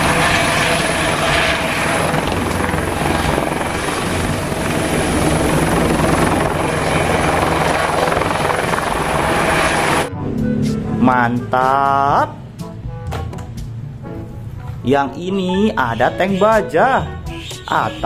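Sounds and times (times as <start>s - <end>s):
helicopter rotor beat: 0.0s - 10.1s
helicopter engine whine: 0.0s - 10.7s.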